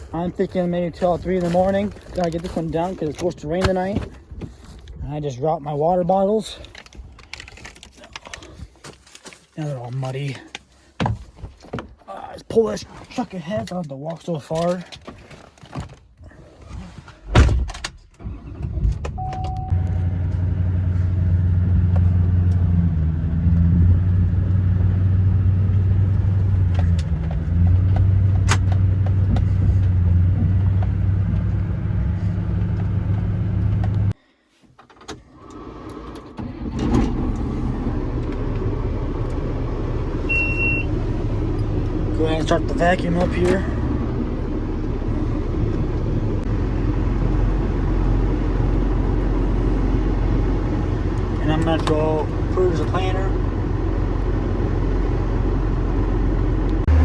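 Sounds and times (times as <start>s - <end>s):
another engine running: 19.7s - 34.2s, 36.5s - 57.0s
vehicle door shutting: 34.8s - 39.3s
pickup truck engine running: 37.1s - 57.0s.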